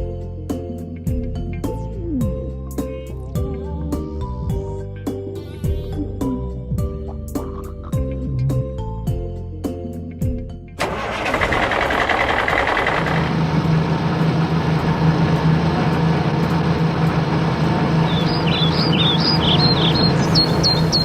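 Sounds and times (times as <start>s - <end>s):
heavy vehicle engine humming: 10.8s - 21.0s
birds chirping: 17.8s - 21.0s.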